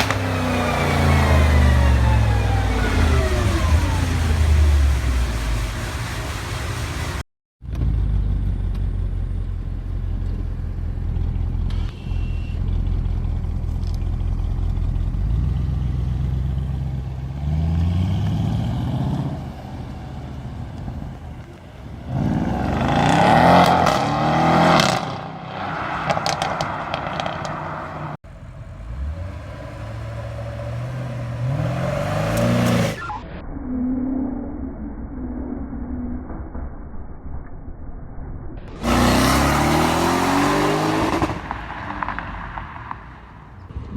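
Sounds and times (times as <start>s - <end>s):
car engine idling and revving: 0.0s - 33.3s, 38.7s - 43.9s.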